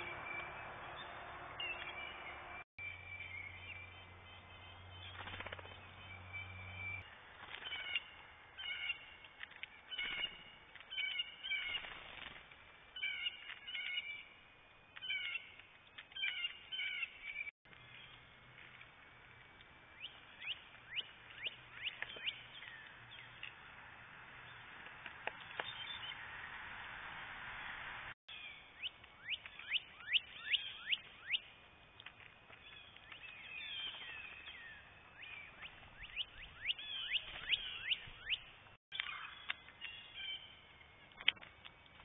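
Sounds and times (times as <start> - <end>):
songbirds chip calls: 14.9 - 18.2, 28.3 - 31.5, 32.6 - 40.6.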